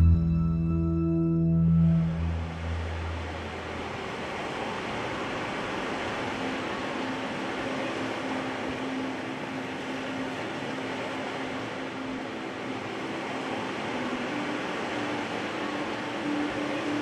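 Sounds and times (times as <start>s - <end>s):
faint low tone: 0.0s - 3.4s
waves breaking on shore: 2.0s - 17.0s.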